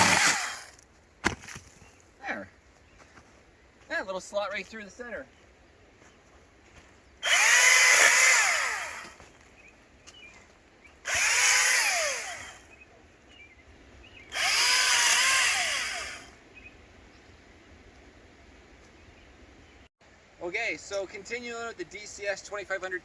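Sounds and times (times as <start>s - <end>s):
electric chainsaw revving: 0.0s - 0.8s, 7.2s - 9.2s, 11.0s - 12.7s, 14.3s - 16.4s.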